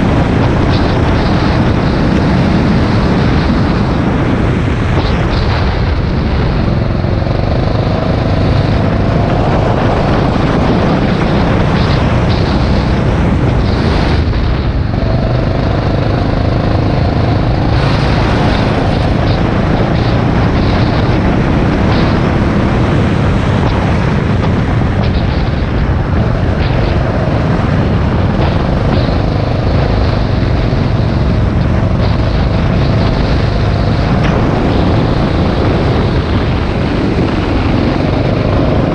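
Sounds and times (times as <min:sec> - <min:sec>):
go-kart engine revving: 0:06.4 - 0:38.9.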